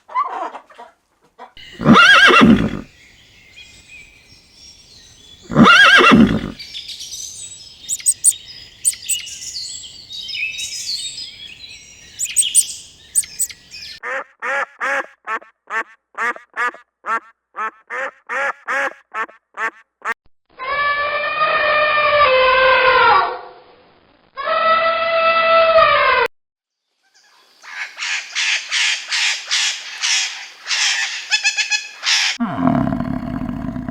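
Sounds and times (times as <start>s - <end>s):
long held animal call: 1.6s - 3.3s, 5.1s - 14.0s, 32.4s - 33.9s
high bird chirping: 1.6s - 14.0s
duck quacking: 7.9s - 9.2s.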